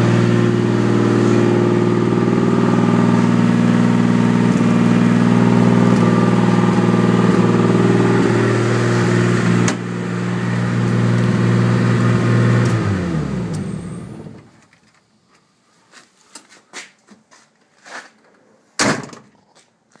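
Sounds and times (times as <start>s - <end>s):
car engine idling and shutting off: 0.0s - 14.7s.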